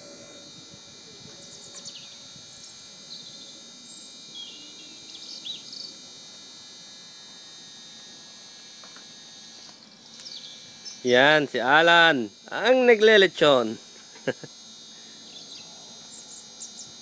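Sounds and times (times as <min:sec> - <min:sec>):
steady background hum: 0:00.0 - 0:17.0
small birds chirping: 0:01.4 - 0:06.0, 0:09.6 - 0:11.1, 0:14.8 - 0:17.0.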